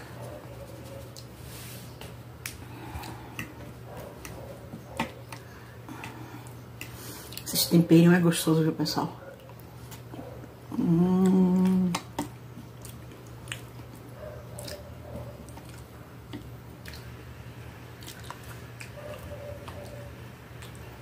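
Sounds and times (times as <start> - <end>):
noisy chewing: 0.1 - 1.4, 2.1 - 8.0, 9.1 - 21.0
person humming mmm: 10.7 - 12.1.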